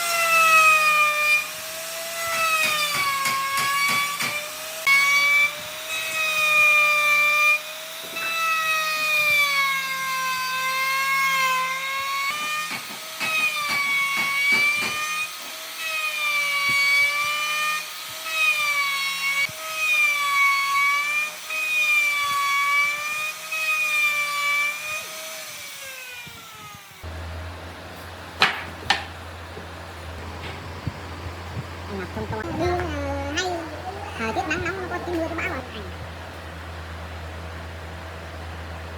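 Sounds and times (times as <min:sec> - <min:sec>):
power tool motor whining: 0:00.0 - 0:38.9
sharp knocks: 0:02.3 - 0:04.5, 0:12.3 - 0:15.0, 0:28.4 - 0:31.7
low hum: 0:27.1 - 0:38.9.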